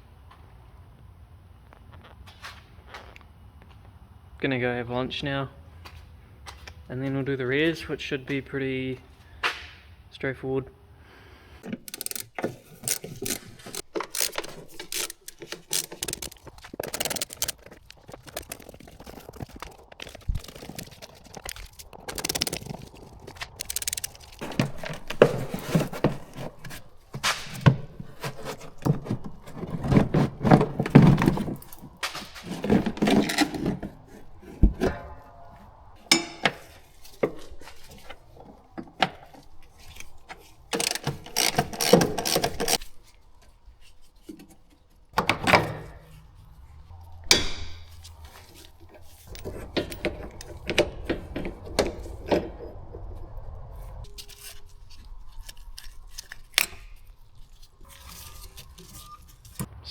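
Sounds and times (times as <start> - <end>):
metal tools clanking: 11.6 - 42.9, 47.0 - 53.2.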